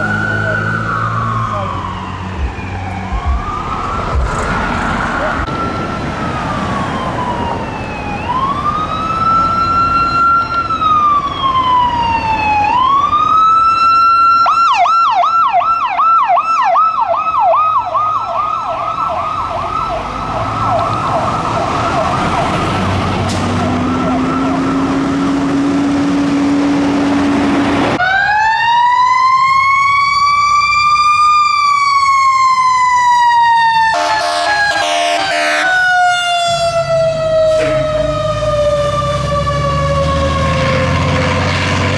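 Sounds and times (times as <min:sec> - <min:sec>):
police siren wailing and yelping: 0:00.0 - 0:25.3, 0:27.9 - 0:41.4
fire truck siren wailing: 0:00.0 - 0:41.9
short horn blasts: 0:33.9 - 0:36.8, 0:37.4 - 0:38.1
low horn tone: 0:33.9 - 0:38.5.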